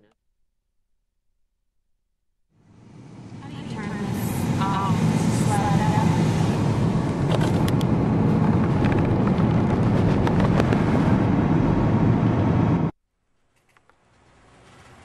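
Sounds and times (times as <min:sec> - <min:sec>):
loud steady rumbling: 0:02.6 - 0:12.9.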